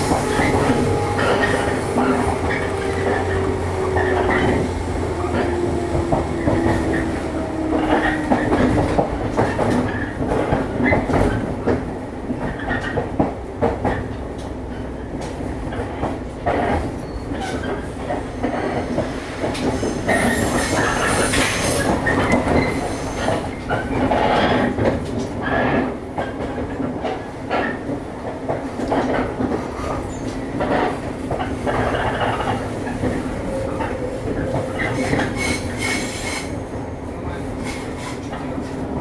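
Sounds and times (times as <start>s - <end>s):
train running rumble: 0.0s - 39.0s
high wheel screech: 19.7s - 23.5s.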